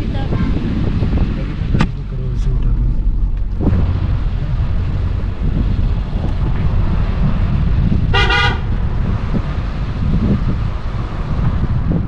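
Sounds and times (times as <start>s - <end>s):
car driving rumble: 0.0s - 12.0s
car horn toot: 8.1s - 8.8s.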